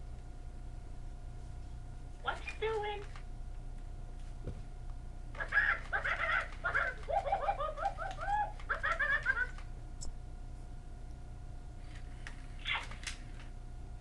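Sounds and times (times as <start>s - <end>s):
robotic parrot toy squawking: 5.4s - 9.6s.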